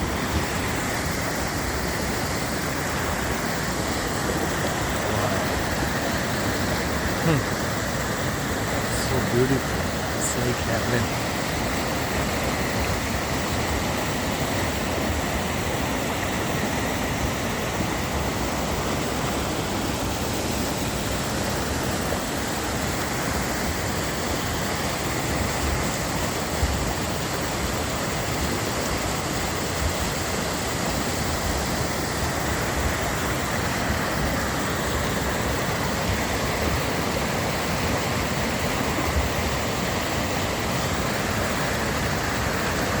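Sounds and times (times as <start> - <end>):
steady outdoor rushing noise: 0.0 - 43.0.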